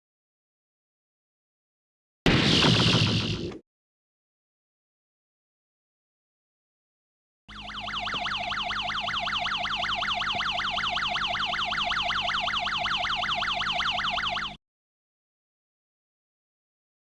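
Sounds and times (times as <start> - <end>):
electronic warbling alarm tone: 7.5 - 14.6.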